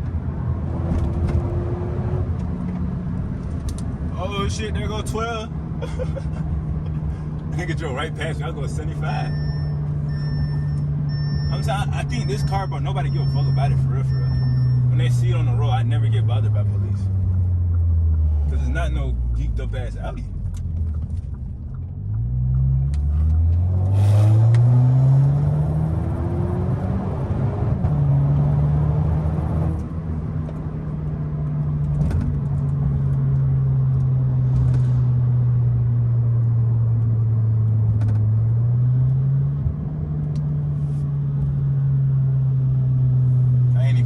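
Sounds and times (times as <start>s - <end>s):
car engine accelerating through gears: 9.3s - 19.6s, 20.3s - 43.8s.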